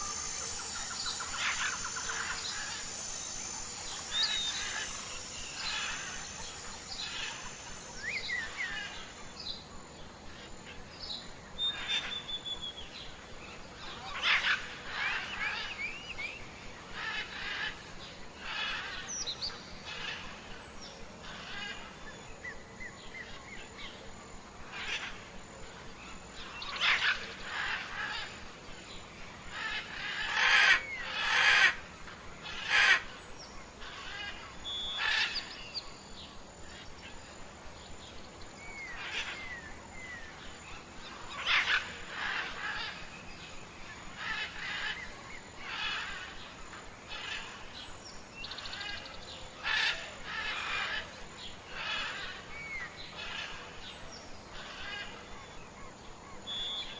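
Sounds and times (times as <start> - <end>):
birds chirping and calling: 0.0 - 9.2, 21.2 - 22.4, 26.4 - 35.9, 38.0 - 56.9.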